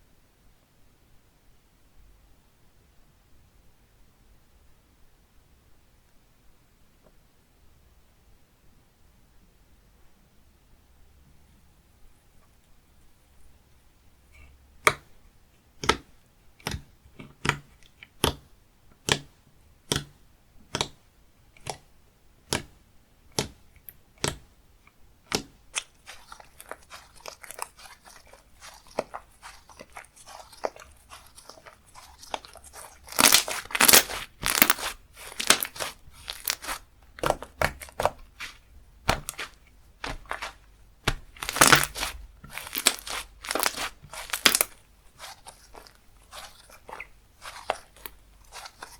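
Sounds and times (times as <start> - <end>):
squishy slime presses with clicks: 19.0 - 19.3, 19.9 - 21.0
slime stretching and crackling: 25.3 - 48.9.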